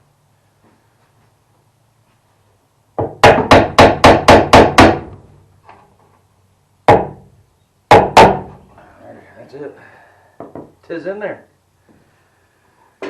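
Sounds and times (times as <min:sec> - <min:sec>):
hammer striking wood: 0:03.0 - 0:05.2, 0:06.9 - 0:07.3, 0:07.9 - 0:08.6.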